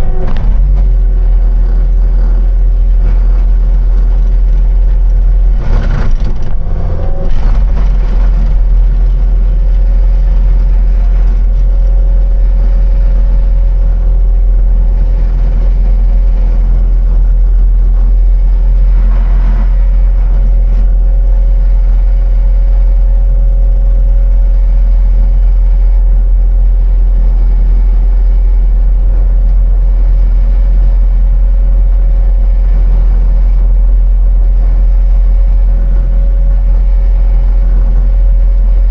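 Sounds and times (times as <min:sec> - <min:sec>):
knocks and clatter: 0:00.0 - 0:13.8
heavy diesel engine running: 0:00.0 - 0:38.9.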